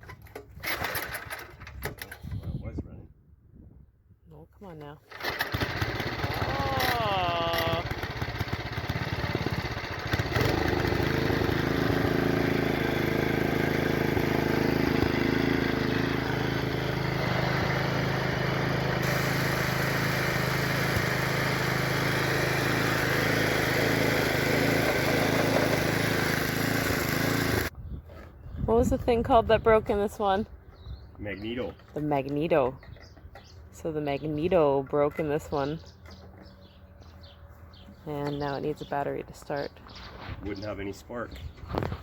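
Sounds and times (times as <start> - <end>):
small gasoline engine running: 0.6 - 1.7, 5.1 - 27.7.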